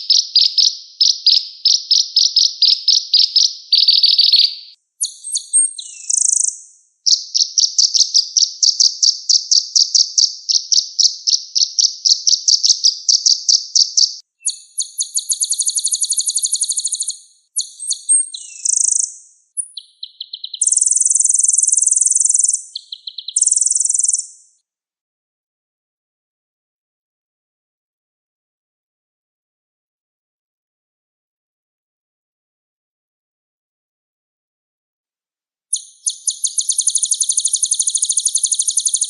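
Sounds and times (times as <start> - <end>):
bird singing high trills: 0.0 - 24.6, 35.7 - 39.0.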